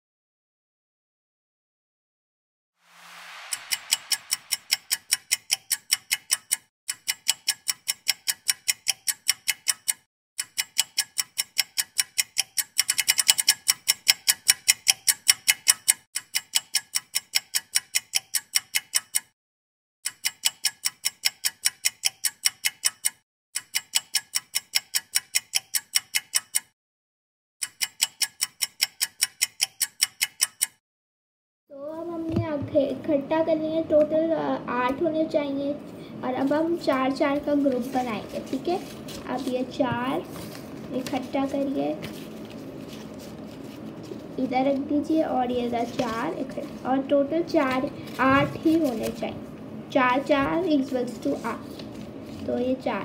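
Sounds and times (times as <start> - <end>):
clock ticking: 3.1 - 19.3, 20.0 - 26.7, 27.6 - 30.8, 36.4 - 42.1.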